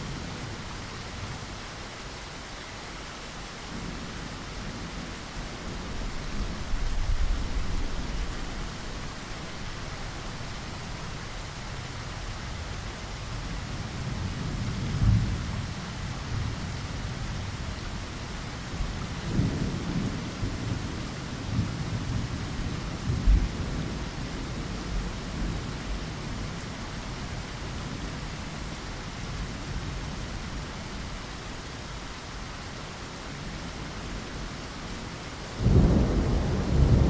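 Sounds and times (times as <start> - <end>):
steady rain: 0.0 - 37.0
thunder rumbling: 35.6 - 37.0.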